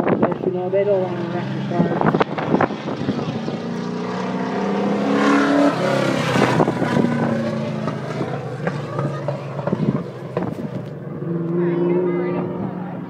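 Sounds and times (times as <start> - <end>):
race car engines: 0.0 - 13.0
race car passing close: 0.1 - 13.0.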